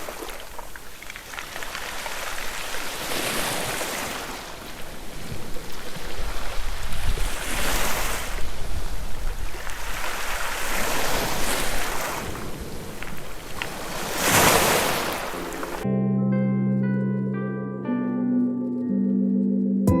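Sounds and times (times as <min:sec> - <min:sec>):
sea waves washing ashore: 0:00.0 - 0:15.8
wind rumbling on microphone: 0:00.5 - 0:15.8.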